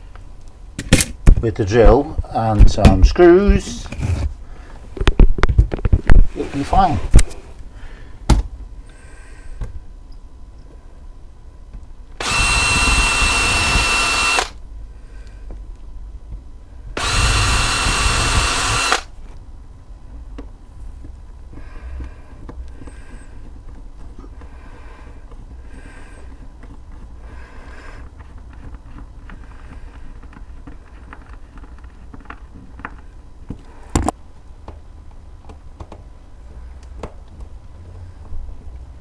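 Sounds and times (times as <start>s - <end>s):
power drill driving a screw: 12.2s - 14.6s, 17.0s - 19.1s.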